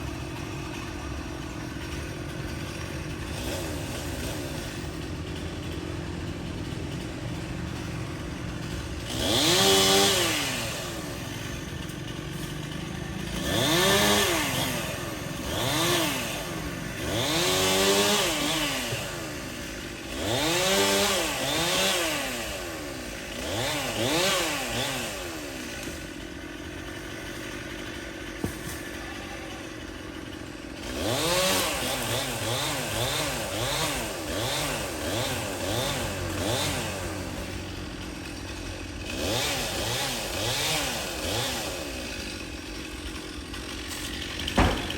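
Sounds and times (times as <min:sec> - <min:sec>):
chainsaw idling: 0:00.0 - 0:44.9
chainsaw throttle blips: 0:08.4 - 0:19.2, 0:29.7 - 0:44.9.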